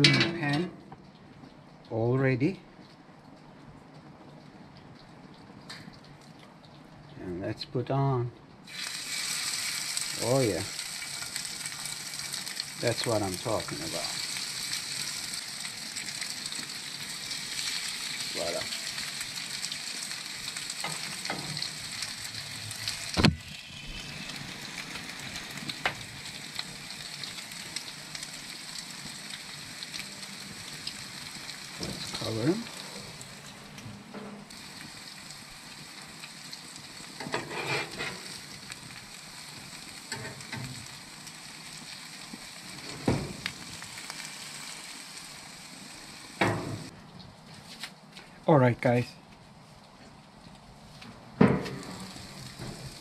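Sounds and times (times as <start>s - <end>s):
patties sizzling in a pan: 8.7s - 33.8s, 34.5s - 46.9s, 51.6s - 53.0s.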